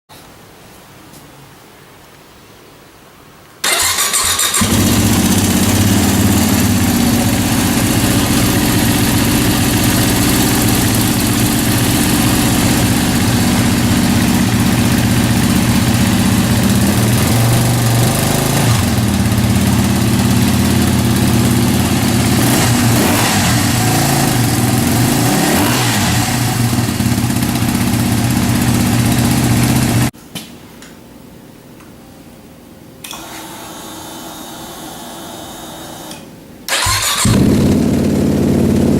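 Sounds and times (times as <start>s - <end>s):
motorcycle engine idling and revving: 3.7s - 30.1s, 36.7s - 38.9s.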